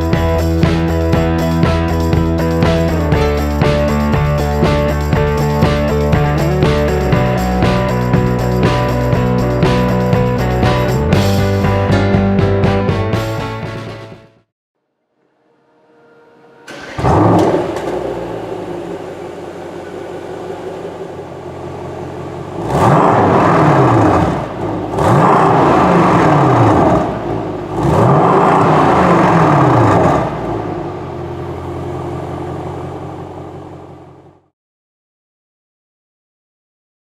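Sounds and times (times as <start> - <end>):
car engine idling: 0.0 - 11.6, 16.7 - 34.5
car engine revving: 0.0 - 11.6, 16.0 - 34.4
car engine starting: 0.0 - 11.9, 16.4 - 34.5.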